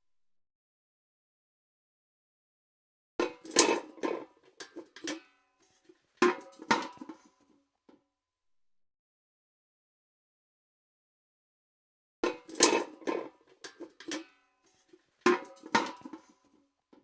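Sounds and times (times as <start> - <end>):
steel bucket clanking: 3.2 - 5.2, 6.2 - 7.3, 12.2 - 14.3, 15.3 - 16.4.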